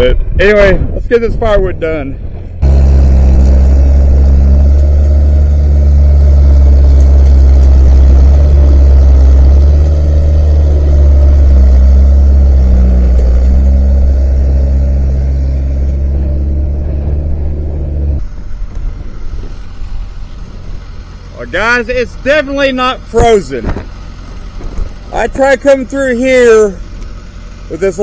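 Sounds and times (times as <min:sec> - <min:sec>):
skid steer engine droning: 0:02.1 - 0:28.0.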